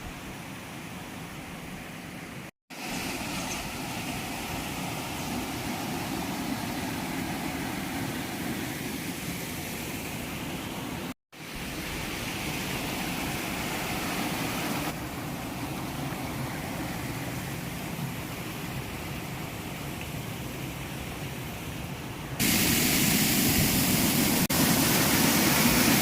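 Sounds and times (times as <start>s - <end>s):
waterfall rushing: 22.4s - 26.0s.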